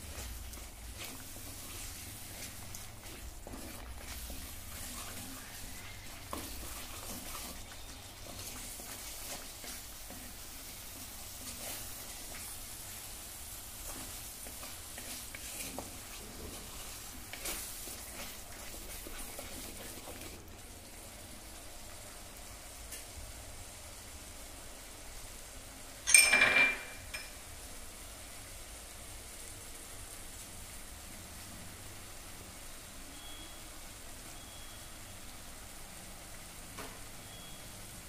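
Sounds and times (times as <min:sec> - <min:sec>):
wooden spatula scraping pot: 0:00.0 - 0:20.4
paste sizzling in oil: 0:00.0 - 0:25.9.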